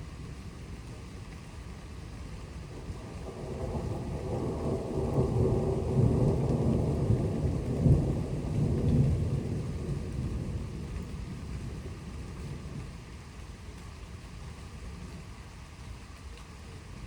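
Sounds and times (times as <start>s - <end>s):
rain hiss: 0.0s - 17.0s
rolling thunder: 2.8s - 12.8s.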